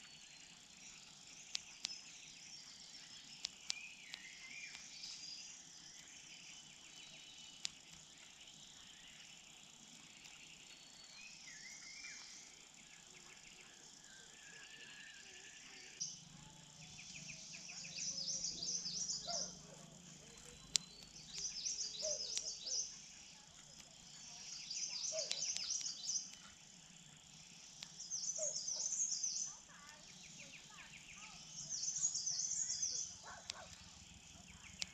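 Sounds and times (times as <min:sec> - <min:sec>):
faint outdoor background noise: 0:00.0 - 0:34.9
rapid high bird chirps: 0:00.0 - 0:34.9
small birds chirping: 0:00.0 - 0:34.9
sharp clicks: 0:00.9 - 0:06.2, 0:07.2 - 0:08.4, 0:16.8 - 0:34.9.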